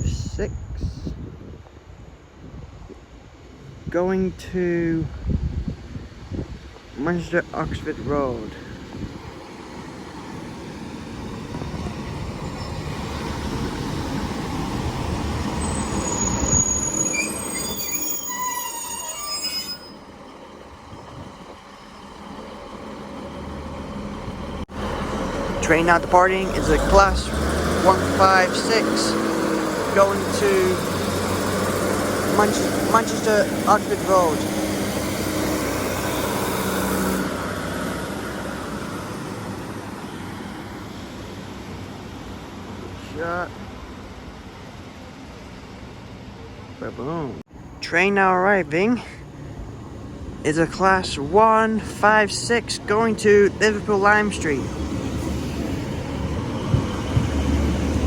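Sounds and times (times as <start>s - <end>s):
train rumbling: 0.0s - 58.0s
train brakes squealing: 12.4s - 13.8s, 15.4s - 20.3s.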